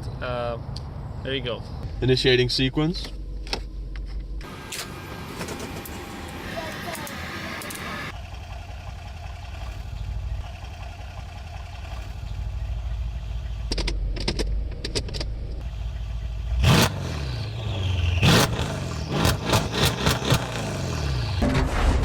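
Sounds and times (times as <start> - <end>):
car engine rumbling: 0.0 - 22.0
engine clicks: 6.9 - 15.7.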